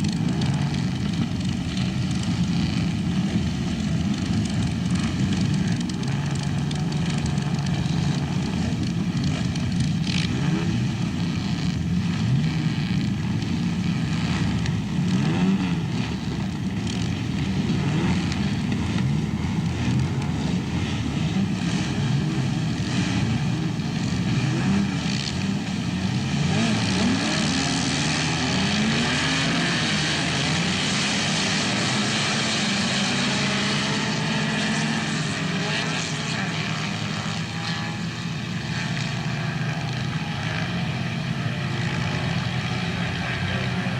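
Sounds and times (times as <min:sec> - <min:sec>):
racing car engines revving: 0:00.0 - 0:43.9.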